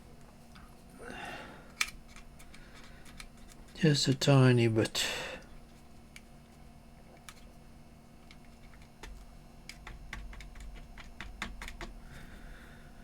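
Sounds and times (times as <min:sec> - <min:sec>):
clicks and taps of plastic parts: 0:08.3 - 0:12.0.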